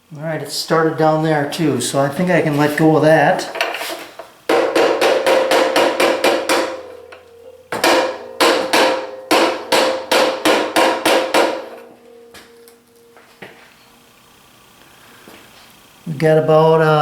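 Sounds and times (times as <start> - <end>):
mallet striking metal socket: 4.5 - 12.8.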